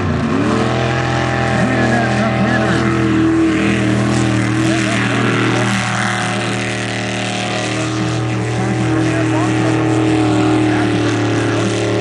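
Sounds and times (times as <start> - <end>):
engine running steadily: 0.0 - 12.0
distant voices: 0.7 - 12.0.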